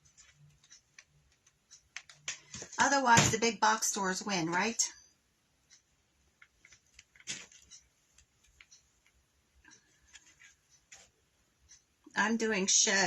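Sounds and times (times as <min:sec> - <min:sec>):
hands rustling craft materials: 0:06.4 - 0:09.2, 0:09.9 - 0:11.2.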